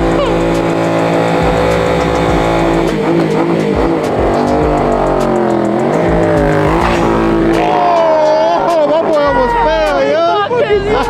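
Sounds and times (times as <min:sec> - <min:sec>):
music with deep bass beat: 0:00.0 - 0:11.0
vehicle engine revving: 0:00.0 - 0:11.0.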